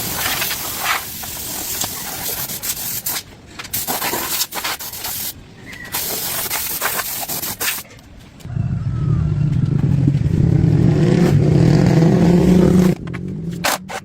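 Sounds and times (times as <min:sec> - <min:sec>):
short bursts of hiss: 0:00.0 - 0:07.8
engine running: 0:08.5 - 0:13.7.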